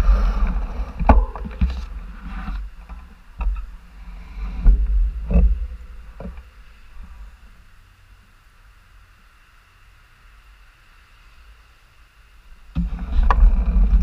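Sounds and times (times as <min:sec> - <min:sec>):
wind rumbling on microphone: 0:00.0 - 0:07.9, 0:12.5 - 0:14.0.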